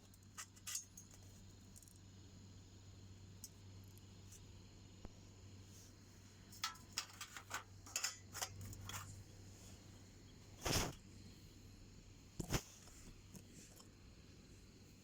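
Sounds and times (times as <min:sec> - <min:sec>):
small handling clicks and scrapes: 0:00.0 - 0:02.0, 0:03.4 - 0:09.9, 0:10.6 - 0:11.0, 0:12.4 - 0:14.0.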